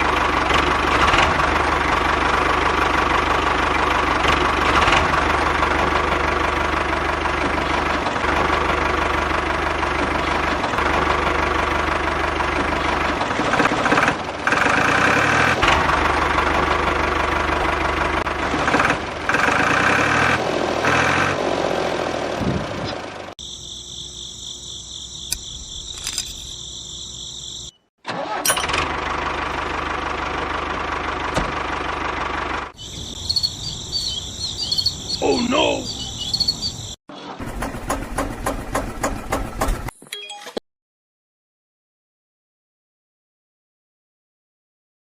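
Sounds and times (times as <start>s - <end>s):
miniature diesel engine running: 0.0s - 23.4s, 25.3s - 39.9s
high insect buzz: 23.4s - 27.8s.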